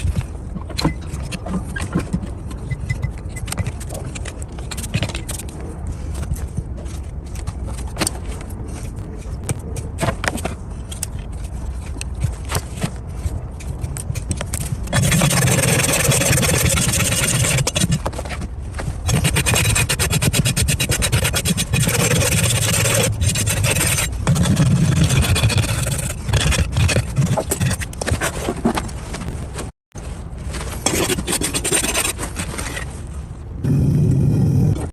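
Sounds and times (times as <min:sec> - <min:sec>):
trimming tool scraping hoof: 0:06.2 - 0:18.4, 0:19.1 - 0:28.9, 0:30.8 - 0:32.9.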